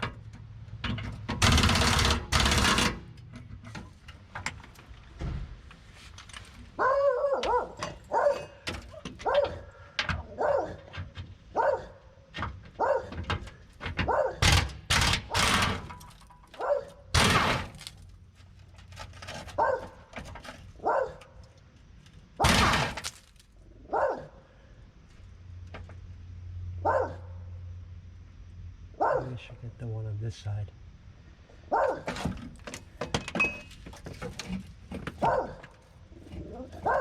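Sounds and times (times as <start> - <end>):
dog barking: 6.8 - 8.6, 9.2 - 10.9, 11.5 - 12.2, 12.8 - 13.2, 14.0 - 14.5, 16.6 - 17.0, 19.6 - 20.0, 20.8 - 21.3, 23.8 - 24.4, 26.8 - 27.4, 29.0 - 29.5, 31.7 - 32.2, 35.2 - 35.7, 36.4 - 37.0
loud bangs: 17.1 - 17.9, 22.4 - 23.2.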